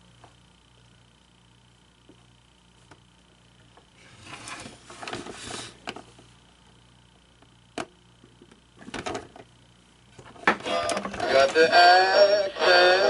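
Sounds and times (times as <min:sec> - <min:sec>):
faint steady hum: 0:00.0 - 0:13.0
plastic toy rustling and scraping: 0:04.0 - 0:06.1.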